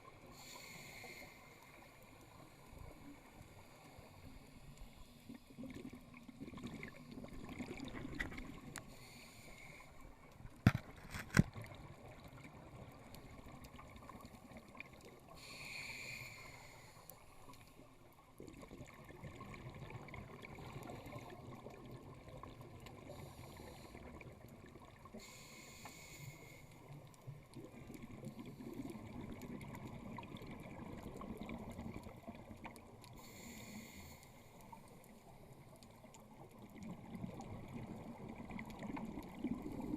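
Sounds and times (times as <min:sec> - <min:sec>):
regulator inhale hiss: 0:00.2 - 0:05.5, 0:08.9 - 0:10.2, 0:15.3 - 0:17.6, 0:23.1 - 0:24.1, 0:25.1 - 0:26.9, 0:33.1 - 0:34.9
exhaled bubbles rushing: 0:05.7 - 0:08.6.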